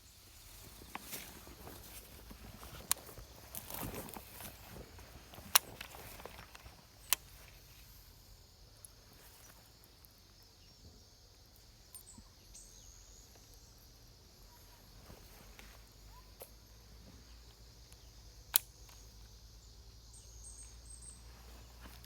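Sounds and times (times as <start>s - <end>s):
faint high bird chirps: 11.7s - 22.0s.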